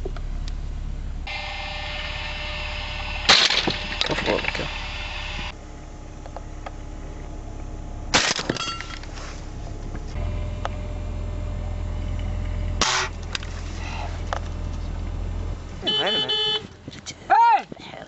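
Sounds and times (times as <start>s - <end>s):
low rumble: 0.0s - 17.3s
shotgun shots: 3.3s - 3.8s, 8.1s - 8.5s, 12.8s - 13.2s.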